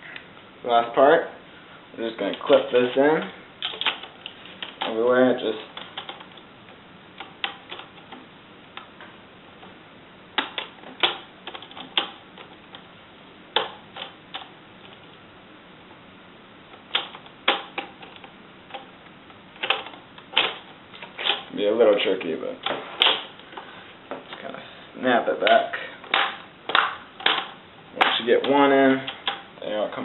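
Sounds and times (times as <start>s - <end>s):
plastic clips snapping into place: 26.1s - 29.4s.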